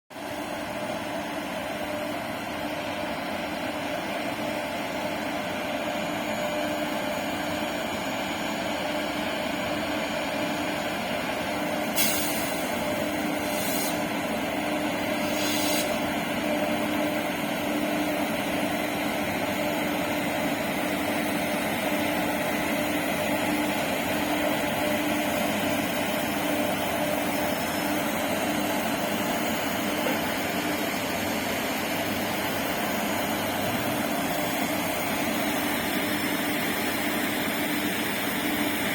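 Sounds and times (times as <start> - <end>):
electric locomotive humming: 0.2 - 38.9
short hiss bursts: 12.0 - 12.8, 13.4 - 14.1, 15.2 - 16.0.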